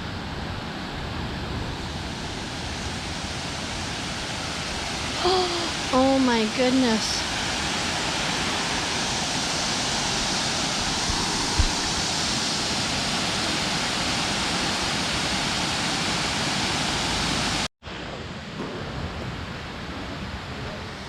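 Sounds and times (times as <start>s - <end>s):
outdoor noise: 0.0s - 21.0s
waterfall rushing: 1.8s - 17.7s.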